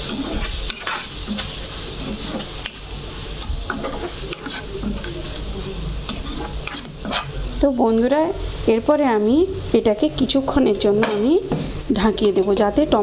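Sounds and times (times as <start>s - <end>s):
metal spatula scraping a pan: 0.0s - 7.5s
food sizzling in a frying pan: 0.0s - 13.0s.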